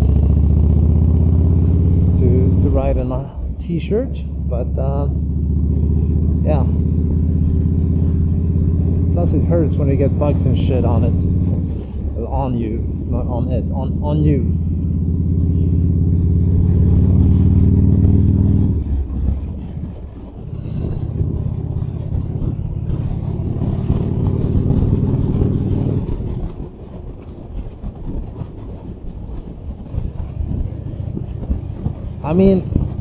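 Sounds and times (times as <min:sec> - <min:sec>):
motorcycle engine pulling hard: 0:00.0 - 0:33.0
wind noise: 0:02.2 - 0:33.0.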